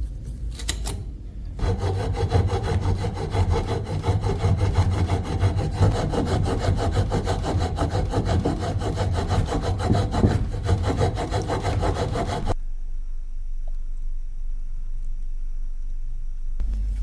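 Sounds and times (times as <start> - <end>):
hand tool rasping strokes: 1.6 - 12.6.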